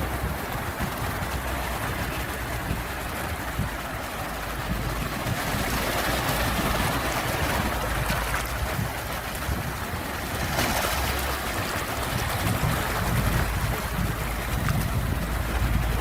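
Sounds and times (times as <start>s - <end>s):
sea waves washing in: 0.0s - 16.0s.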